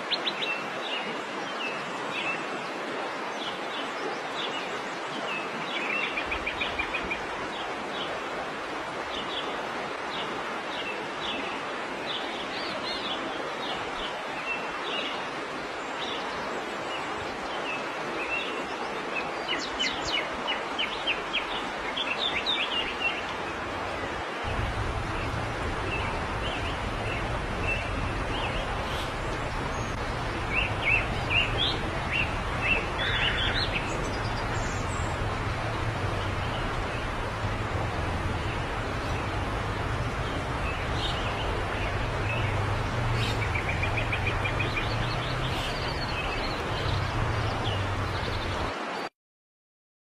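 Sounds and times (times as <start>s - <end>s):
steady background hiss: 20.3s - 48.7s
low hum: 24.5s - 48.7s
bird trill: 25.0s - 35.3s.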